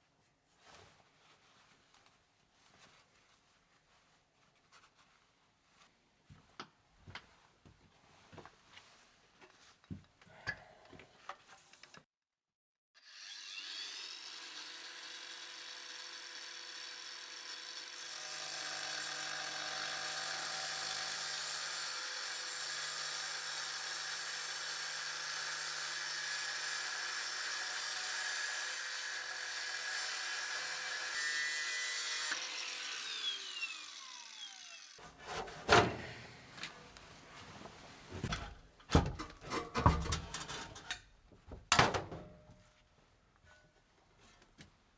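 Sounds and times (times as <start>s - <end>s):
power tool running: 13.0s - 35.0s.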